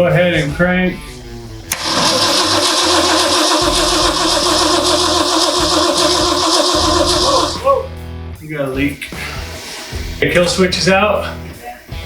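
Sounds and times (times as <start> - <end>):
starter click: 1.7 - 7.6
starter motor cranking engine: 1.7 - 7.7.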